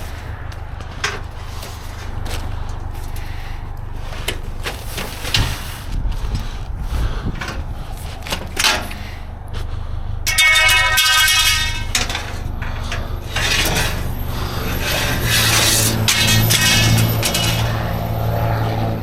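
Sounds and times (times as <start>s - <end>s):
steady low rumble: 0.0s - 19.0s
debris knocking and scraping in dumpster: 10.3s - 18.4s.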